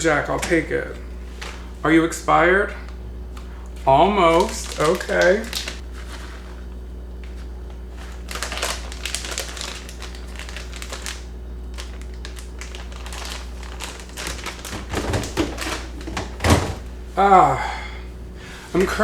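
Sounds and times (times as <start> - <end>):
plastic packaging crinkling: 0.1 - 1.8, 3.3 - 17.0.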